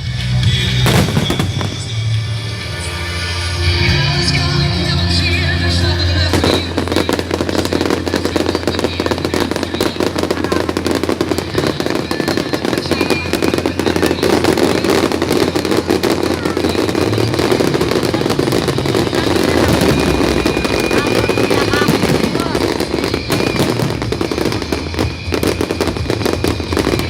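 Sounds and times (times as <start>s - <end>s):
fireworks crackling and banging: 0.0s - 27.0s.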